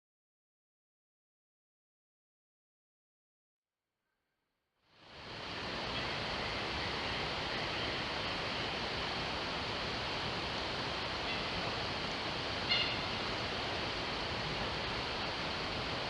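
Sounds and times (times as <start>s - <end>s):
mountain stream rushing: 5.0s - 16.0s.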